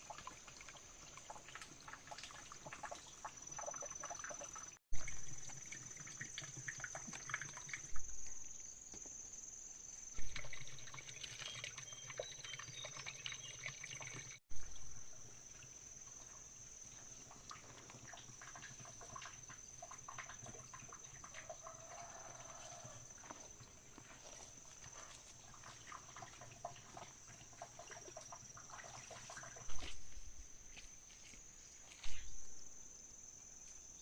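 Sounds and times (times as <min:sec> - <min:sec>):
water splashing and trickling: 0:00.0 - 0:09.1, 0:09.9 - 0:32.7.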